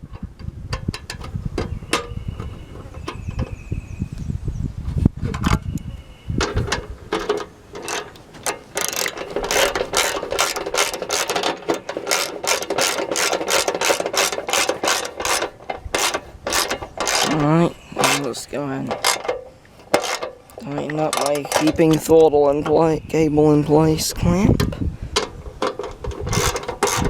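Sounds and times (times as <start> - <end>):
hand ratchet clicking: 7.8 - 18.3, 18.9 - 22.0, 25.2 - 27.0.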